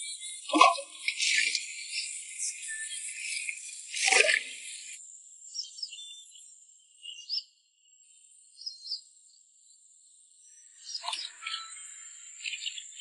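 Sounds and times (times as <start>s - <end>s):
faint bird chirps: 0.0s - 13.0s
water splash: 0.5s - 1.6s, 4.0s - 4.6s.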